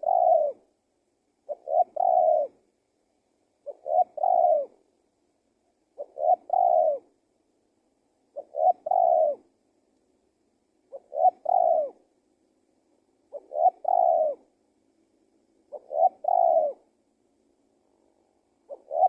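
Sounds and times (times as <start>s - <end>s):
dove cooing: 0.0s - 0.7s, 1.4s - 2.6s, 3.6s - 4.8s, 5.9s - 7.2s, 8.3s - 9.5s, 10.9s - 12.1s, 13.3s - 14.5s, 15.6s - 16.9s, 18.6s - 19.0s.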